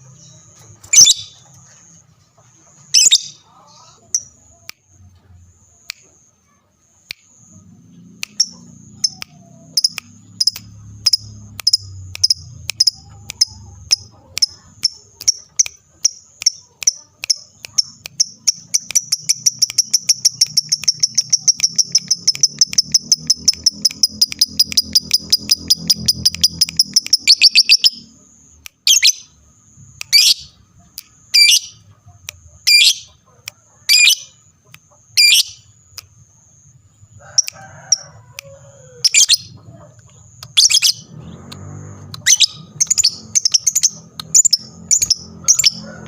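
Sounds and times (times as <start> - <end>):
lovebird chattering trill: 0.1 - 1.5, 2.8 - 4.4, 8.2 - 28.1, 28.8 - 29.3, 30.0 - 31.9, 32.6 - 33.2, 33.9 - 34.4, 35.0 - 35.7, 39.0 - 41.4, 42.0 - 46.0
bird squawks: 3.0 - 4.1, 31.4 - 31.8, 35.2 - 35.6.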